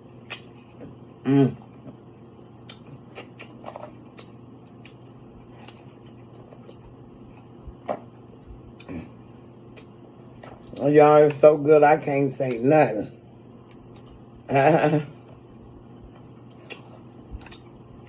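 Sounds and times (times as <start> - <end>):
person chewing with wet smacks: 0.0 - 11.5, 15.7 - 18.0
faint steady hum: 0.0 - 18.0.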